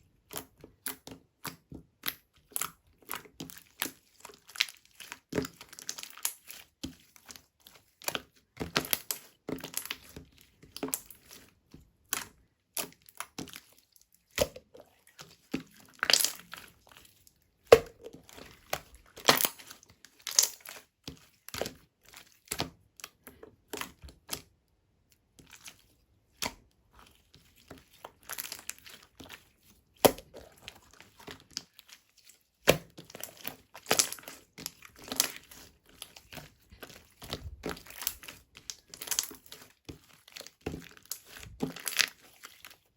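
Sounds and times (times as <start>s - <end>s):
slime sticky crackles and pops: 16.0s - 16.6s, 32.6s - 34.3s.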